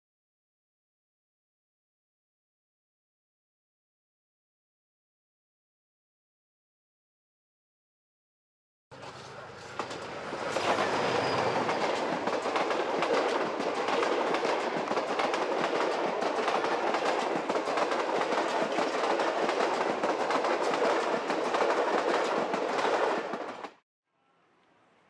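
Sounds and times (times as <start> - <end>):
diesel locomotive engine: 8.9 - 23.7
train rolling on rails: 8.9 - 23.8.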